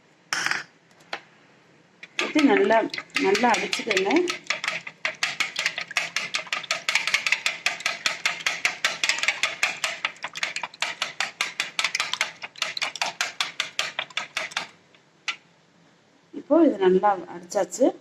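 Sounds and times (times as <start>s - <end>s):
utensil clicking against bowl: 2.0s - 15.4s.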